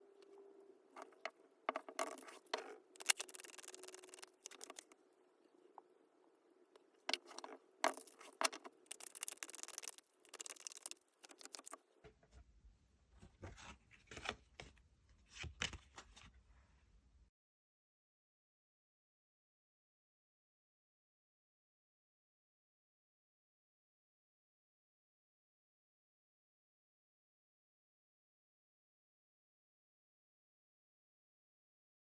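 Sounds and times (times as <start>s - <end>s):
cards shuffling: 1.7s - 5.0s, 7.1s - 11.8s.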